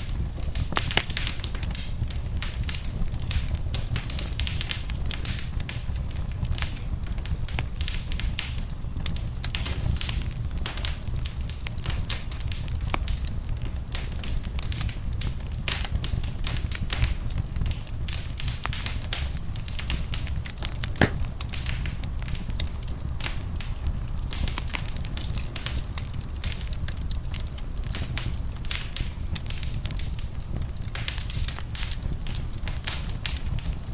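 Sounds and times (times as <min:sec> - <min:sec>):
low fire rumble: 0:00.0 - 0:33.9
wood fire crackling: 0:00.0 - 0:33.9
sharp pop from fire: 0:19.9 - 0:22.0.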